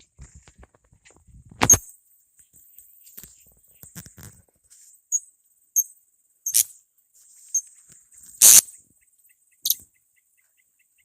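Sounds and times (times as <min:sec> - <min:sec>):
parrots shrill calls: 0:08.4 - 0:08.6.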